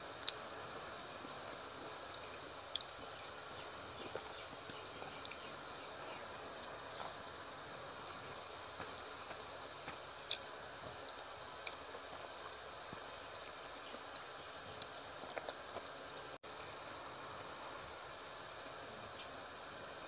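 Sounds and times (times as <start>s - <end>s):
faint steady hiss: 0.0s - 20.0s
wet mouth chewing sounds: 2.1s - 7.2s, 13.3s - 15.9s.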